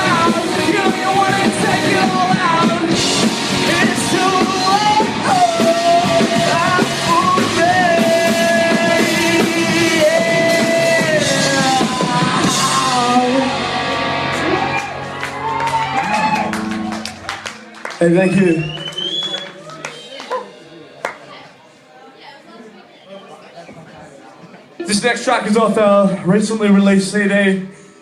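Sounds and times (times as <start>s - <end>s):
person singing: 0.0s - 14.7s
rock band playing live: 0.0s - 19.4s.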